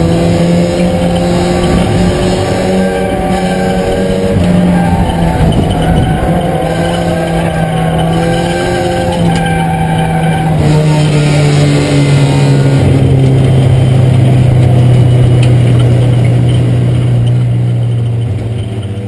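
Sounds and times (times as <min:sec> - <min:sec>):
race car engine revving: 0:00.0 - 0:19.0
road and wind noise: 0:00.0 - 0:19.0.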